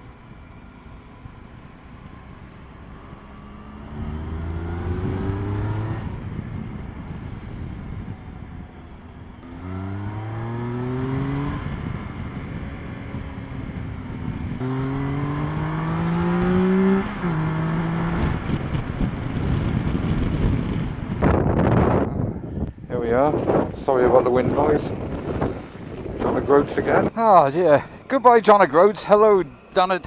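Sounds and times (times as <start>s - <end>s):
motorcycle engine accelerating: 0.2s - 27.8s
wind noise on microphone: 4.0s - 27.1s.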